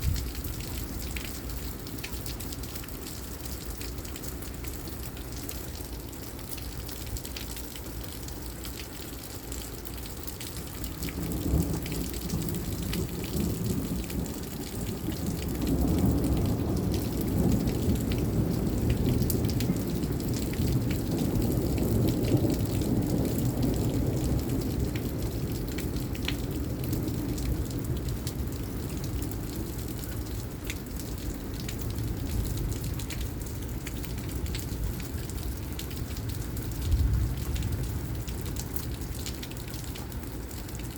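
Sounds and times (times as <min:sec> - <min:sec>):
heavy rain falling: 0:00.0 - 0:40.9
raindrop ticks: 0:00.0 - 0:40.9
thunder rumble: 0:36.6 - 0:38.6.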